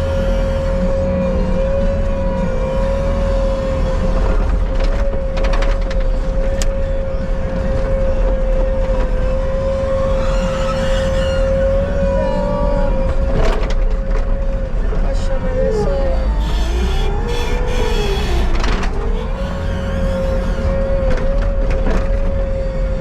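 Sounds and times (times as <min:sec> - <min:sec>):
skid steer engine drone: 0:00.0 - 0:23.0
high whine: 0:15.8 - 0:22.2.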